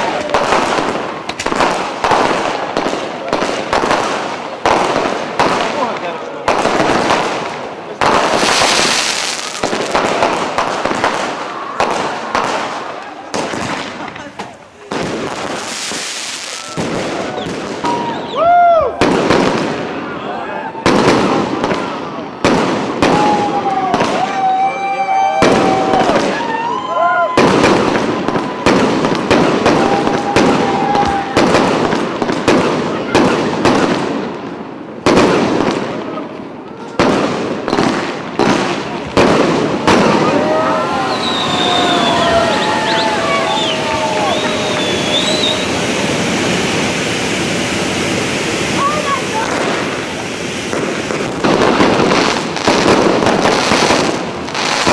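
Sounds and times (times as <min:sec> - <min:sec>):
firework bangs: 0:00.0 - 0:54.9
firework crackling: 0:00.0 - 0:54.9
thin steady whistle: 0:17.3 - 0:18.5, 0:41.1 - 0:45.8.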